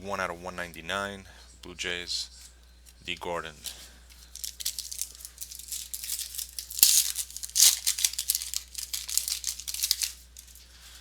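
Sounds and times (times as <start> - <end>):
cards and packaging rustling: 3.6 - 11.0.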